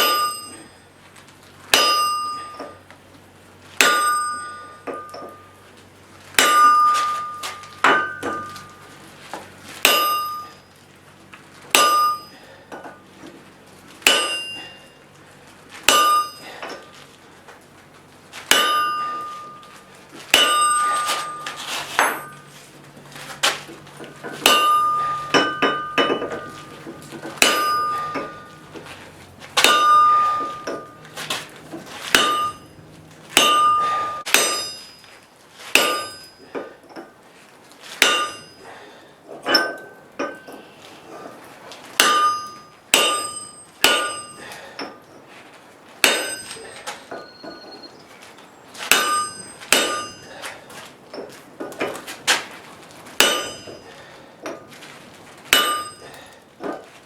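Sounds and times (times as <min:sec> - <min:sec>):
anvil ringing: 0:00.0 - 0:00.8, 0:01.7 - 0:02.8, 0:03.8 - 0:05.6, 0:06.4 - 0:08.9, 0:09.8 - 0:10.8, 0:11.7 - 0:12.6, 0:14.0 - 0:15.0, 0:15.9 - 0:16.9, 0:18.5 - 0:22.5, 0:24.0 - 0:28.9, 0:29.6 - 0:36.7, 0:38.0 - 0:38.9, 0:39.5 - 0:40.8, 0:42.0 - 0:45.0, 0:46.0 - 0:48.0, 0:48.9 - 0:50.5, 0:53.2 - 0:54.7, 0:55.5 - 0:56.4
hammer striking steel on anvil: 0:00.0 - 0:00.8, 0:01.7 - 0:02.8, 0:03.8 - 0:05.6, 0:06.4 - 0:08.9, 0:09.8 - 0:10.6, 0:11.7 - 0:13.0, 0:14.0 - 0:15.0, 0:15.9 - 0:16.9, 0:18.5 - 0:19.7, 0:20.3 - 0:22.5, 0:24.0 - 0:29.0, 0:29.6 - 0:35.1, 0:35.7 - 0:37.1, 0:38.0 - 0:38.8, 0:39.5 - 0:40.8, 0:42.0 - 0:45.0, 0:46.0 - 0:47.8, 0:48.8 - 0:50.5, 0:53.2 - 0:54.7, 0:55.5 - 0:56.8.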